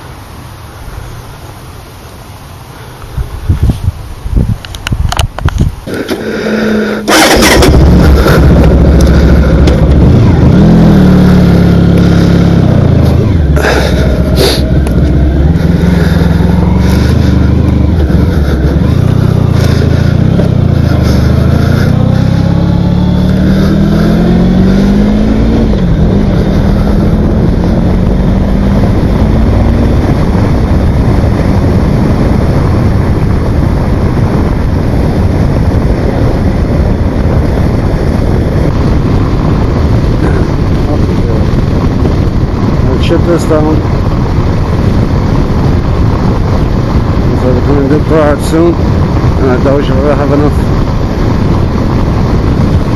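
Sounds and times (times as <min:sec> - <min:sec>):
broad noise: 0:00.0 - 0:52.9
motorcycle engine revving through gears: 0:05.8 - 0:52.9.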